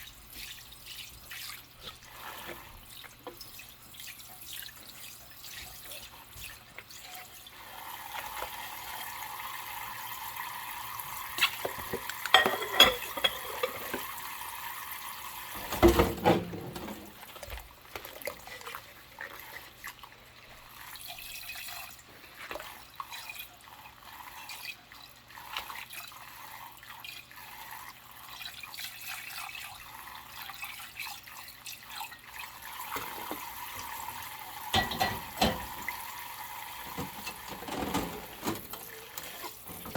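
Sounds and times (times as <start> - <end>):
tap water running into sink: 0.0 - 19.7, 25.3 - 39.9
dish handling noises: 11.4 - 14.1, 15.6 - 17.2, 34.7 - 36.0, 36.8 - 39.9
dish clunking against sink: 11.6 - 14.1, 15.6 - 17.2, 34.7 - 36.1, 36.8 - 39.9
dishes clinking: 11.6 - 14.1, 34.7 - 36.0, 36.8 - 39.9.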